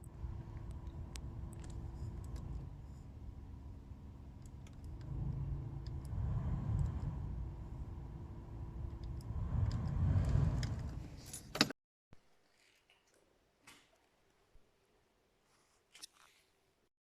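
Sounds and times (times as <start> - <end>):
blower fan humming: 0.0 - 11.4.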